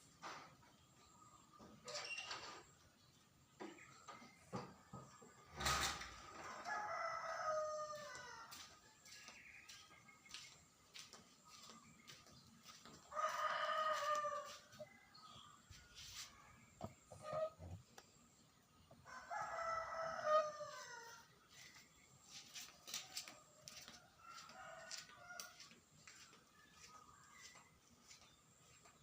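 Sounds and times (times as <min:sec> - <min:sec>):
rooster crowing: 0:06.4 - 0:08.7, 0:13.1 - 0:14.8, 0:19.1 - 0:21.3.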